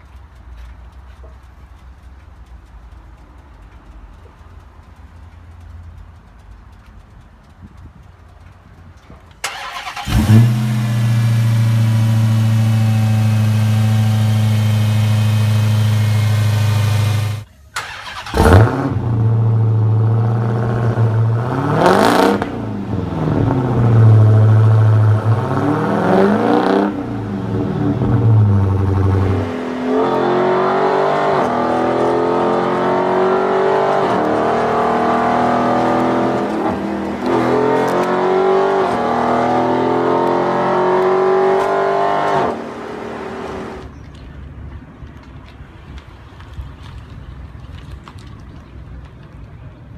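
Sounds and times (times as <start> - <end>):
engine under way: 8.4 - 43.9
car engine starting: 9.2 - 43.9
car engine revving: 9.4 - 43.8.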